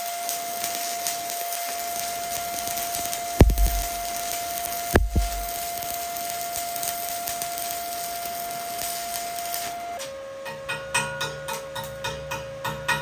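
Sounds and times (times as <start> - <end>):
welding arc hissing: 0.2 - 9.8
knocks: 3.4 - 4.1, 5.0 - 5.5
ticking pulse: 3.4 - 4.2, 5.0 - 5.5.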